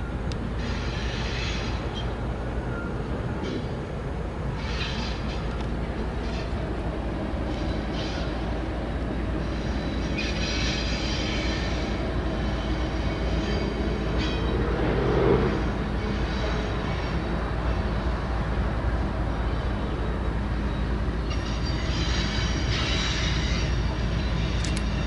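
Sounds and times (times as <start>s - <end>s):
train wheels rumbling on rail: 0.0s - 25.0s
high-pitched wheel squeal: 9.4s - 18.0s.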